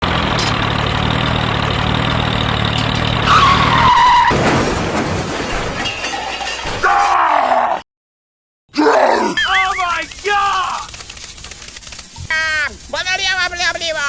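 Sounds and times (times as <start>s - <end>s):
engine humming: 0.0s - 3.8s
falling squeal: 2.9s - 4.6s.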